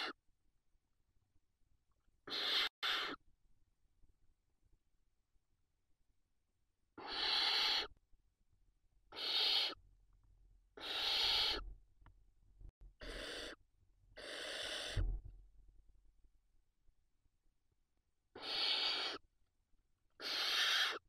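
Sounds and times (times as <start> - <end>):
owl chicks hissing: 2.2 - 3.2, 7.0 - 8.0, 9.1 - 9.8, 10.8 - 11.7, 13.0 - 13.6, 14.2 - 15.0, 18.3 - 19.2, 20.2 - 21.0.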